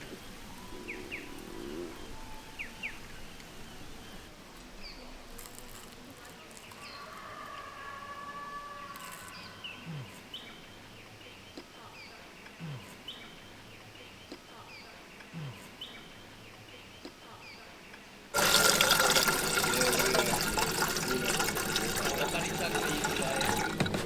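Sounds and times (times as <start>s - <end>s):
water pouring: 18.4s - 24.0s.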